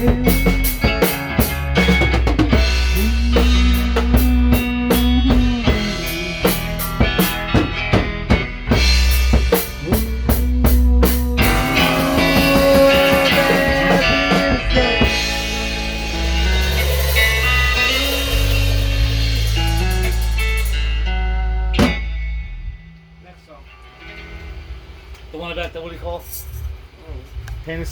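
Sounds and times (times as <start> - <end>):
drum kit quick beats: 0.0 - 21.1, 21.8 - 22.2
bass guitar: 0.0 - 25.3
sustained guitar notes: 0.0 - 25.3.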